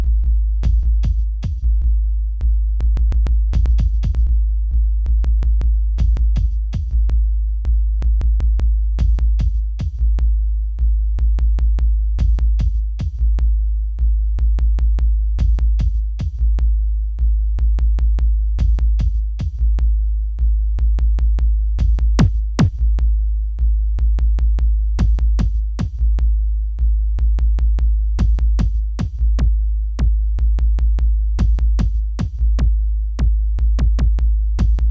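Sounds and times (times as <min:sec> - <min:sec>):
deep held bass: 0:00.0 - 0:34.9
sharp clicking percussion: 0:22.2 - 0:22.8.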